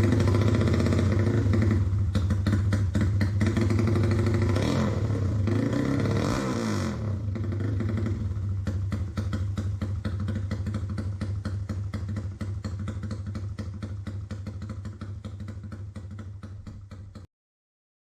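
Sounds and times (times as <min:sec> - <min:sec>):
motorcycle idling: 0:00.0 - 0:17.3.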